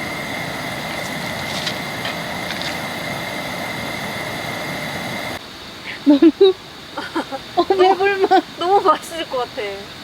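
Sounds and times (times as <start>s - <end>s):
thin steady high tone: 0.0s - 9.8s.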